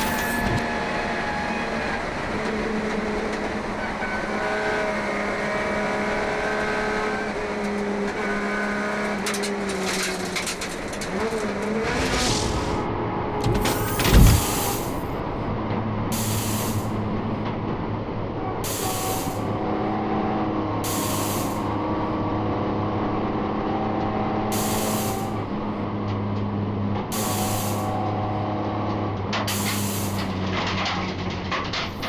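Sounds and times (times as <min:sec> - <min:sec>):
loud low thump: 0:11.8 - 0:15.5
short bursts of hiss: 0:16.2 - 0:17.0, 0:18.7 - 0:19.5, 0:20.9 - 0:21.8, 0:24.6 - 0:25.4, 0:27.2 - 0:28.1.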